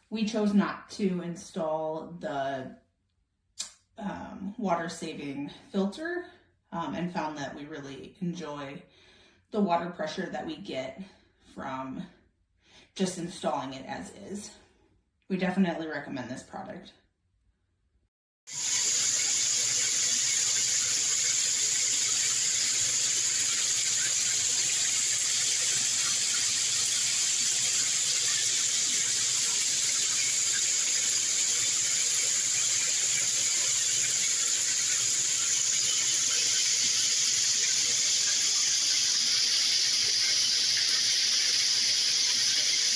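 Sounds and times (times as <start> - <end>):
shower water spraying: 18.5 - 42.9.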